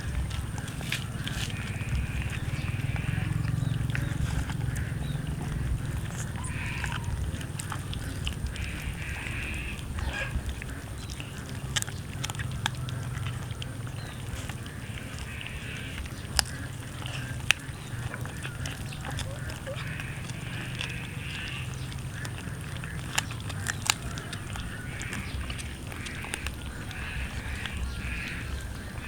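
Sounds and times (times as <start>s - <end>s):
cats chewing wetly: 0.0s - 29.0s
low steady rumble: 0.0s - 29.0s
sharp bone cracks: 10.0s - 28.2s.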